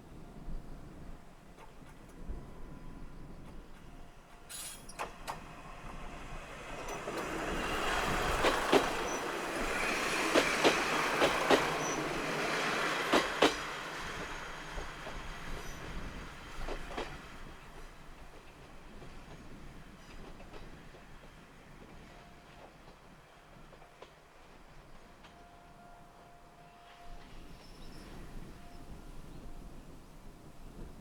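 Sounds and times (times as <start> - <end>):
railcar running past: 0.0 - 31.0
wheels clicking over rail joints: 3.4 - 22.0.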